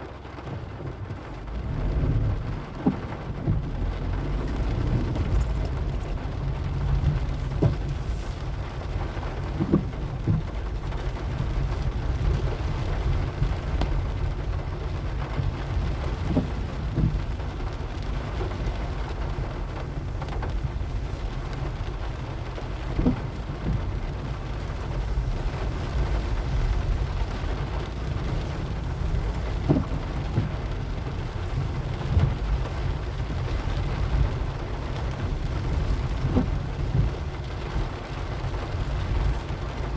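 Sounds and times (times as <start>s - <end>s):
engine and road rumble: 0.0s - 39.9s
rain hiss: 0.0s - 39.9s.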